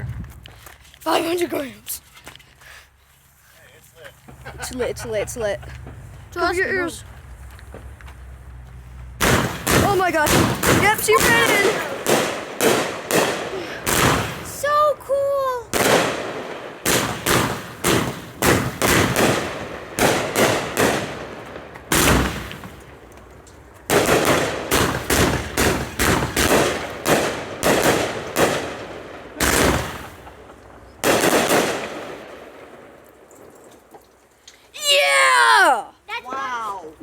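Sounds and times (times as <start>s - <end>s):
firework bangs: 9.2s - 33.6s.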